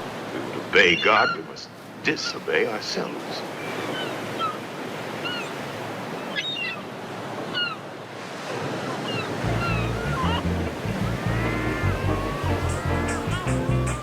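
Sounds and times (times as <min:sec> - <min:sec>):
sea surf washing: 0:00.0 - 0:14.0
high chirping cries: 0:06.3 - 0:06.8, 0:09.1 - 0:14.0
low sustained music notes: 0:09.4 - 0:14.0.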